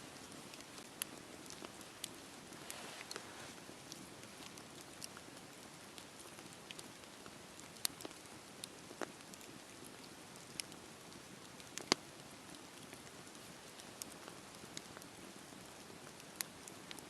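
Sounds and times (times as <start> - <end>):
fire crackling and popping: 0.1 - 17.0
campfire hissing: 0.3 - 17.0.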